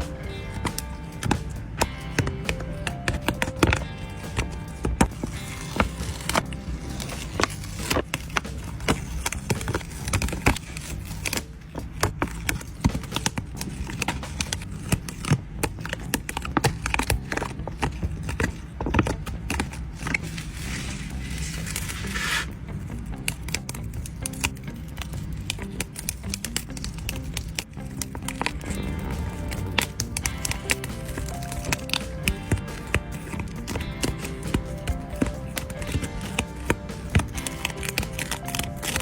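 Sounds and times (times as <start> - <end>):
sticker sheets crinkling and tapping: 0.0 - 22.5, 23.2 - 39.0
packaging rustling: 24.0 - 39.0.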